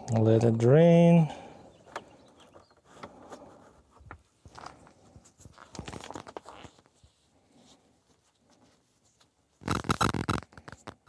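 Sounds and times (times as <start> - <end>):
rustling: 2.5 - 11.0.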